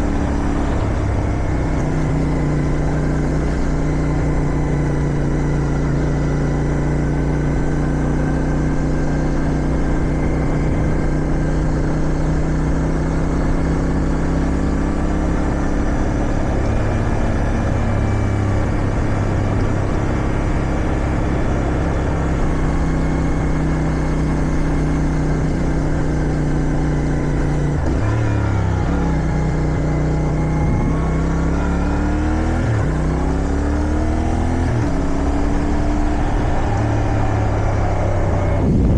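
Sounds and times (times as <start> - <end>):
motorcycle engine accelerating: 0.0 - 38.9
wind noise: 34.2 - 38.9.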